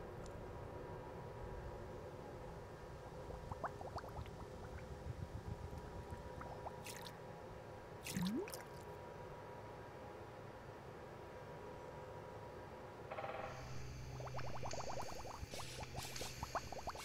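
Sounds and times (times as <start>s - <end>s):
low steady hum: 0.0s - 10.0s, 11.5s - 17.0s
rising wet squelch: 8.0s - 8.8s.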